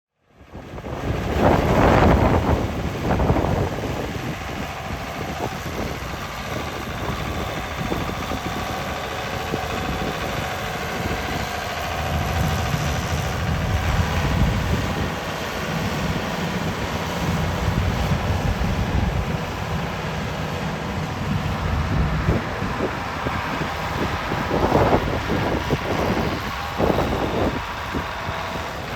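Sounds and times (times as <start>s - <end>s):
wind buffeting microphone: 0.4s - 28.9s
tractor diesel engine idling: 0.8s - 28.9s.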